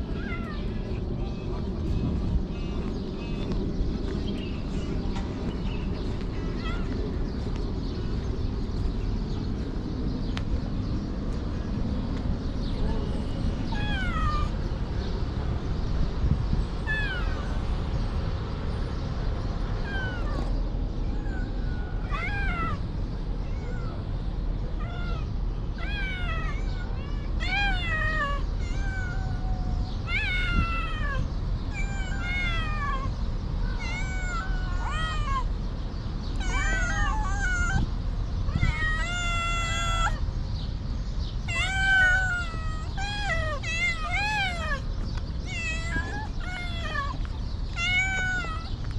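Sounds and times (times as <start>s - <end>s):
cats meowing: 0.0s - 1.1s, 6.1s - 7.2s, 12.9s - 14.6s, 16.8s - 17.8s, 19.8s - 35.5s, 36.3s - 40.2s, 41.4s - 48.9s.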